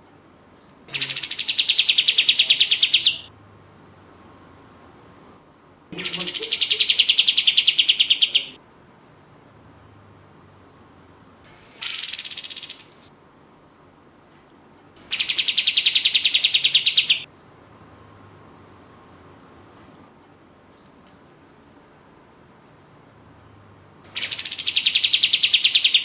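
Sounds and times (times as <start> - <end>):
songbird rattling trills: 0.9 - 3.3, 11.8 - 13.0, 15.1 - 17.3, 24.1 - 26.0.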